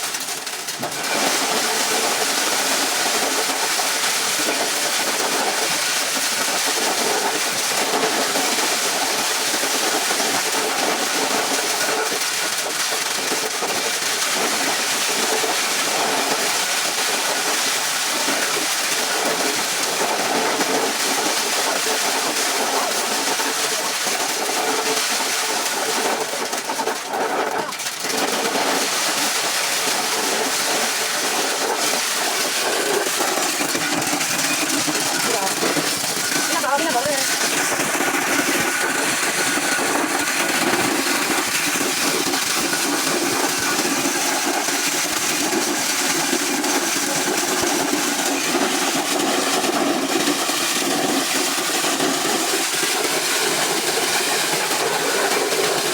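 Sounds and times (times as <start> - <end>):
farm machine running: 0.0 - 55.9.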